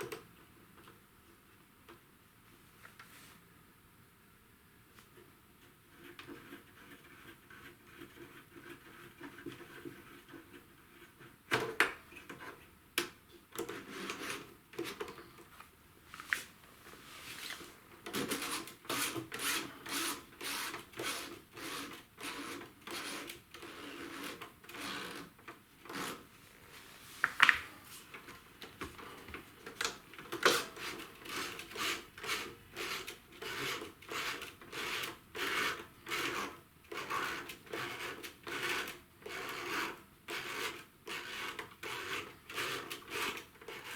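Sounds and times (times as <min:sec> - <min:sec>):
rubbing and scraping strokes: 0:16.2 - 0:25.0.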